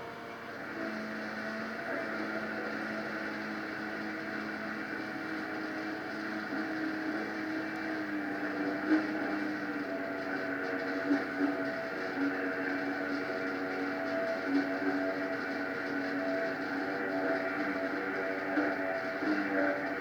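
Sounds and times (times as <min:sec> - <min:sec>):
small boat engine running: 0:00.0 - 0:20.0.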